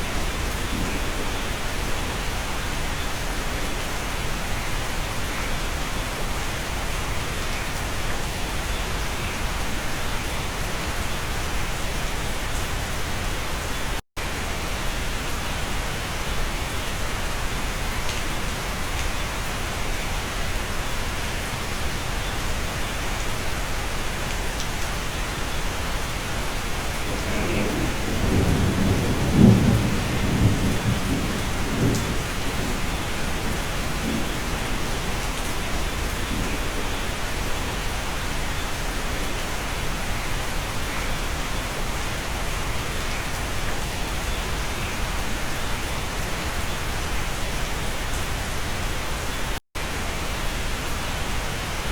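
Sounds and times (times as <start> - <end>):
low rumble of thunder: 0.0 - 2.8, 26.6 - 38.1
steady rain: 0.0 - 51.9.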